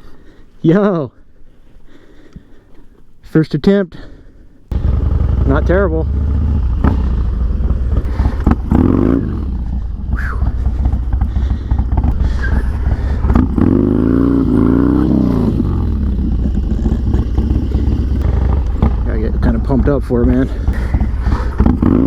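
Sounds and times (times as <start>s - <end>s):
motorcycle engine revving: 4.7s - 22.0s.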